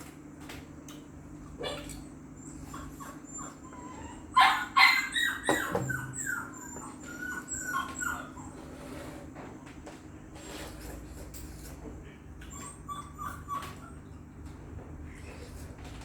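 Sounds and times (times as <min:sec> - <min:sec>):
dog whining: 0:01.6 - 0:09.1, 0:12.4 - 0:14.3.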